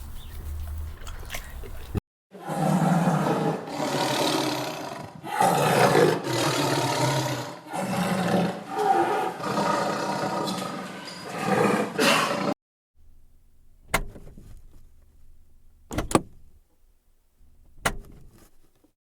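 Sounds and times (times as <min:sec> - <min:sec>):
large animal harsh rasping calls: 0:02.4 - 0:12.6.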